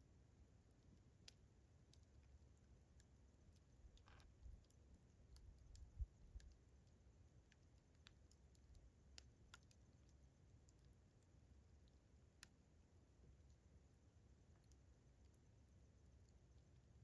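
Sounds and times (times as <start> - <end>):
campfire crackling and popping: 1.2 - 11.0.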